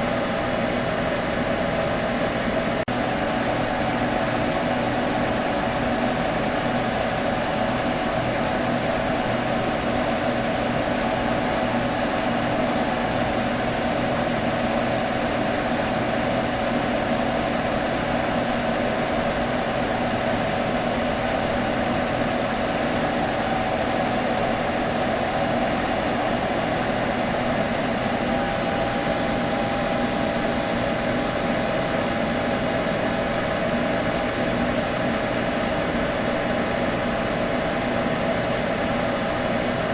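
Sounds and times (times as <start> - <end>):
computer humming: 20.6 - 33.0.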